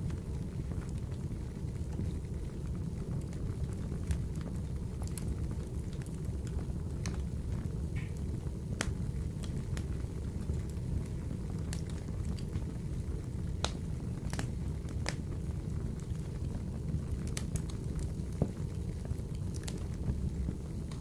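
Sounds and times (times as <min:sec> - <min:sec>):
fire crackles and pops: 0:00.0 - 0:21.0
stove fire rumble: 0:00.0 - 0:21.0.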